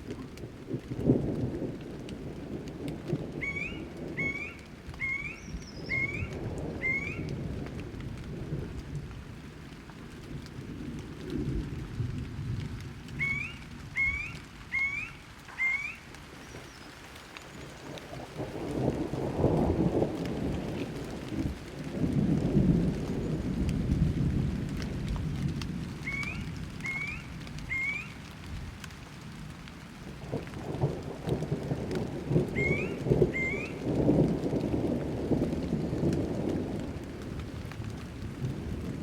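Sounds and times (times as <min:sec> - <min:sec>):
rolling thunder: 0:00.0 - 0:09.5, 0:17.7 - 0:28.8, 0:30.1 - 0:39.0
steady rain: 0:00.0 - 0:39.0.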